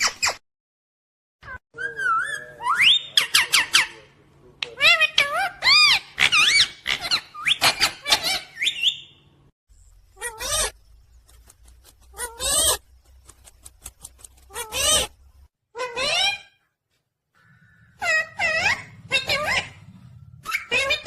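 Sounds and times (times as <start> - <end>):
parrot squawking and calling: 1.5 - 4.0, 4.7 - 9.2, 10.2 - 10.8, 12.1 - 12.8, 14.5 - 16.7, 17.4 - 21.0.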